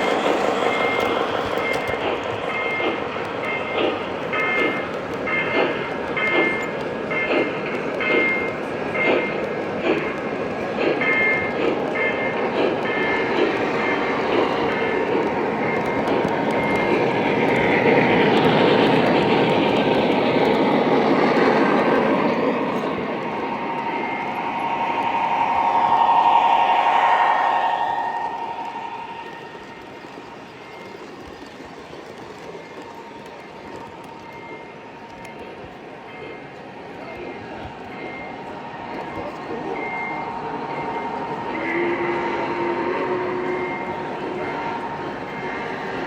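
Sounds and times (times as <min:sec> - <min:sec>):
model train rolling rumble: 0:00.0 - 0:26.1
high-pitched wheel squeals: 0:21.0 - 0:30.3.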